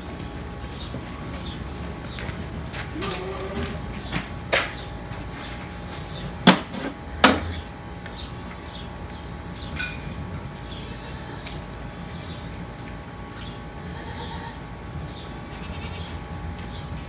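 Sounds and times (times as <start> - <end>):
metal parts clanking: 6.7 - 7.6, 9.8 - 10.5.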